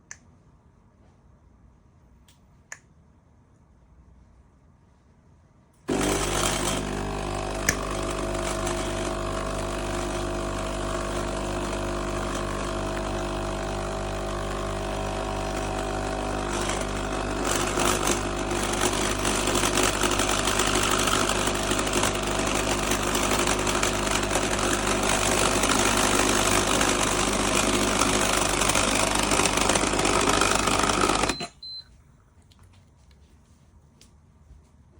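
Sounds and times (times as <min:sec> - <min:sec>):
coffee machine pump buzzing: 0:05.9 - 0:31.5.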